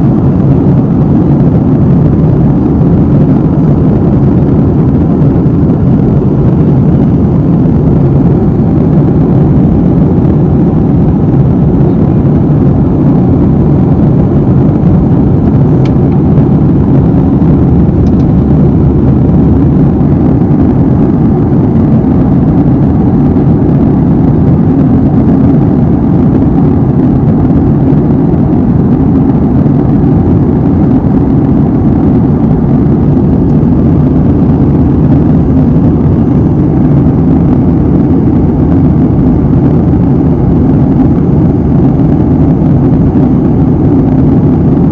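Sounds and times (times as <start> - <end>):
airliner cabin drone: 0.0 - 44.9.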